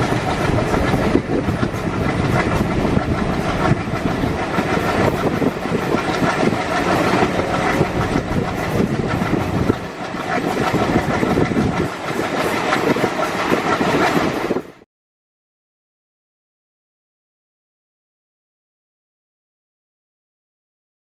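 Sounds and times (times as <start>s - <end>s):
train wheels clattering over rails: 0.0s - 14.8s.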